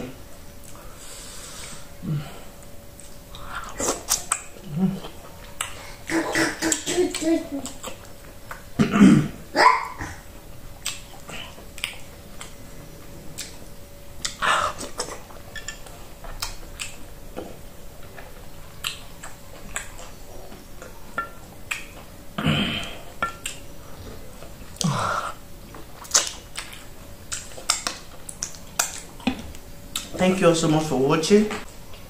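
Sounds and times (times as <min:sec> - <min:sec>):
chewing and lip smacking: 0:03.0 - 0:08.7, 0:10.6 - 0:22.2, 0:23.2 - 0:24.9, 0:25.6 - 0:30.2.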